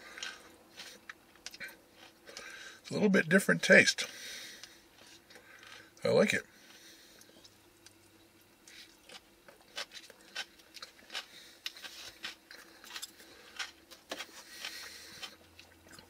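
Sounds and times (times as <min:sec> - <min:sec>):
person chewing: 0:00.0 - 0:02.8, 0:06.7 - 0:16.0.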